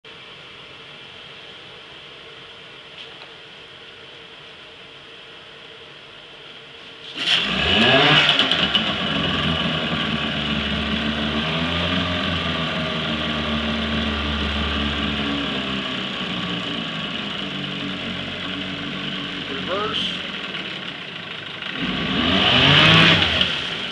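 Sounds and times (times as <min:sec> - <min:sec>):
outboard motor starting and running: 0:07.1 - 0:23.9.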